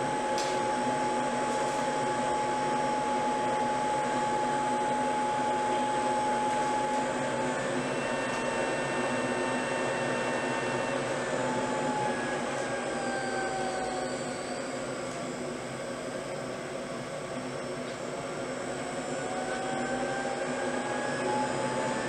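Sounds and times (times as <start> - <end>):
mechanical whir of motor: 18.6 - 22.0.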